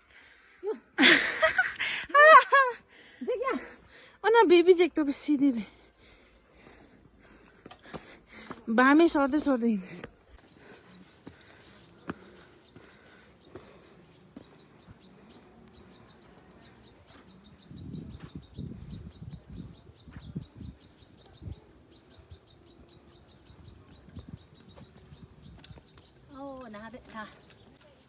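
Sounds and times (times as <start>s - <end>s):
insects chirping: 10.4s - 27.9s.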